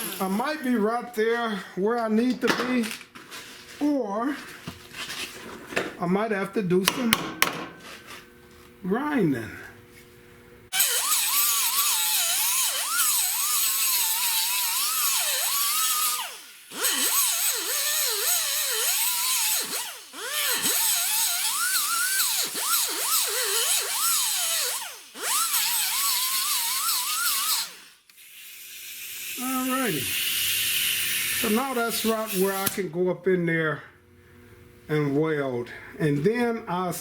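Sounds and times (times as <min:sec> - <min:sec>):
power grinder grinding steel: 0:00.0 - 0:00.6, 0:10.7 - 0:32.8.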